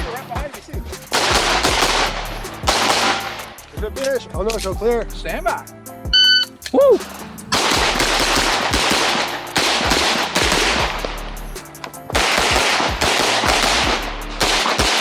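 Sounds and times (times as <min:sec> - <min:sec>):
background music: 0:00.0 - 0:15.0
rapid pistol fire: 0:01.1 - 0:03.5, 0:07.6 - 0:11.2, 0:12.2 - 0:15.0.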